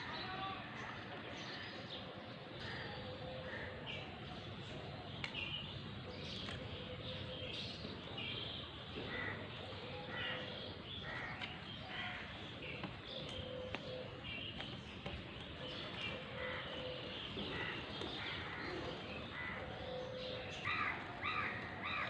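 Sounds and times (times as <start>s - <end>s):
other birds calling: 8.6s - 22.0s
crows cawing: 9.1s - 9.5s, 10.1s - 12.3s, 16.3s - 22.0s.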